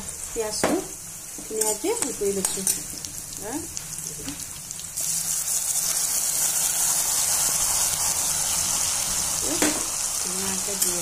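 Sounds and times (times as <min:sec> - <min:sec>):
oil sizzling in a wok: 0:00.0 - 0:11.0.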